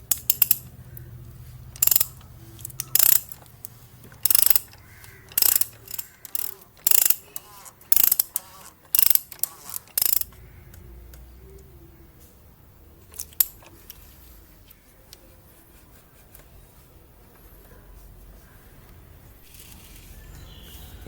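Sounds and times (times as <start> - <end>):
ratchet wrench clicking: 0.0 - 10.4, 13.1 - 13.7.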